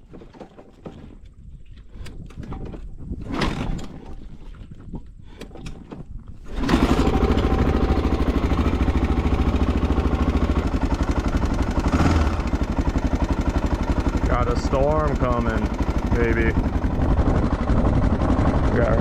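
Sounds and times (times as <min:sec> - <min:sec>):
dirt bike engine idling: 0:06.5 - 0:19.0.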